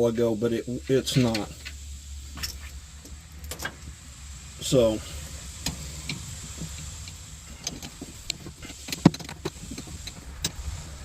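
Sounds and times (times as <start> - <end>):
low steady rumble: 0.0 - 11.0
tools and parts clicking: 3.4 - 3.8.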